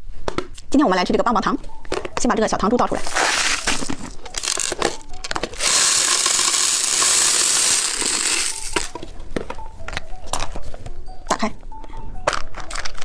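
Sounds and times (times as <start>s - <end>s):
candy beads rattling in container: 3.0s - 9.0s
candy beads pouring out: 3.1s - 5.0s, 5.6s - 8.9s.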